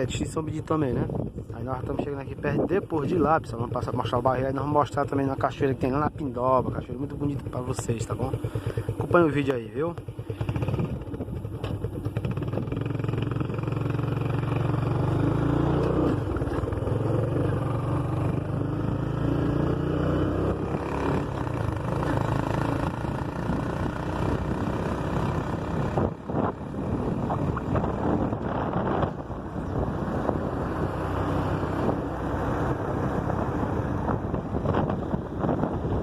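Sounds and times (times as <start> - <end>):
vehicle engine running: 0.0 - 36.0.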